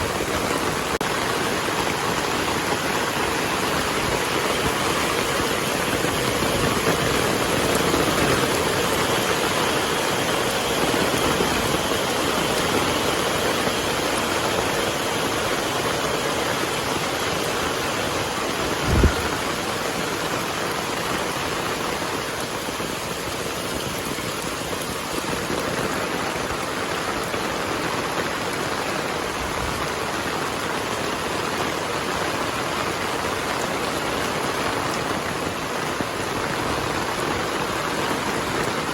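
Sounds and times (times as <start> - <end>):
heavy rain falling: 0.0 - 38.9
low thump: 18.8 - 19.5.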